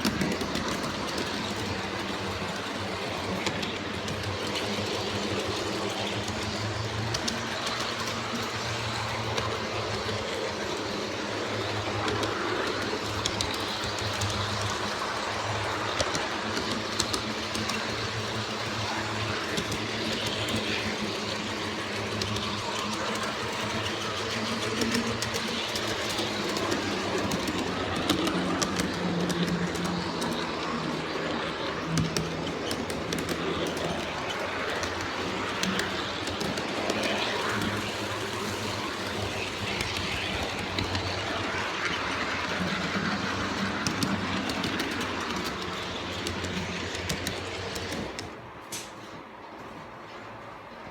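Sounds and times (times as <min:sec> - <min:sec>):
model locomotives humming: 0:00.0 - 0:50.9
sharp clicks on track: 0:11.8 - 0:49.2.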